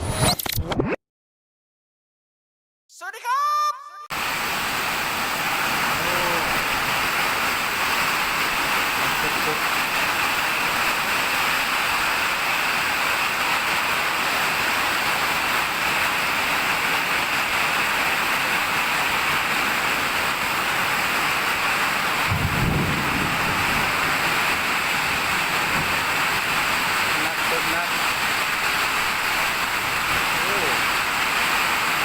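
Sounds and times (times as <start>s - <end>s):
heavy rain falling: 4.1s - 32.0s
low rumble of thunder: 22.2s - 26.2s.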